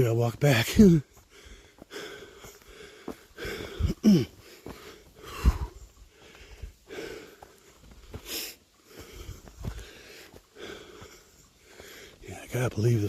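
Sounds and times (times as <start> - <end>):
man breathing hard: 1.0 - 12.3
man groaning: 3.8 - 4.3.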